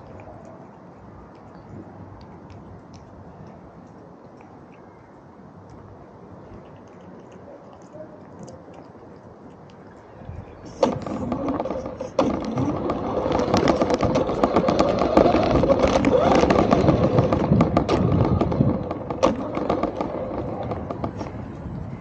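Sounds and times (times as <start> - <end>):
toy car rattling over rough ground: 10.7 - 22.0.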